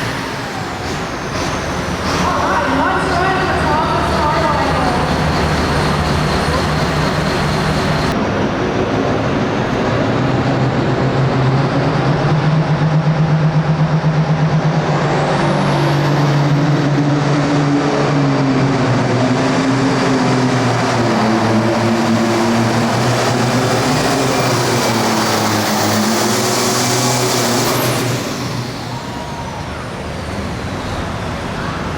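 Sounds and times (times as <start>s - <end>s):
tractor diesel engine under load: 0.0s - 31.9s.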